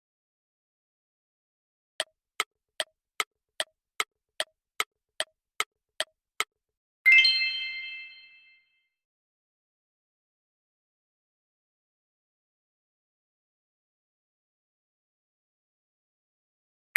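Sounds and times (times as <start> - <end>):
bright bell chime: 7.1 - 8.7.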